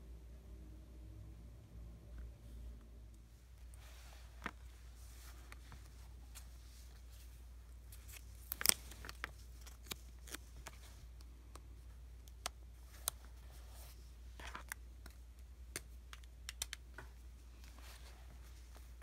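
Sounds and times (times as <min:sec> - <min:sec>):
sticker paper crackling: 0:08.0 - 0:11.2.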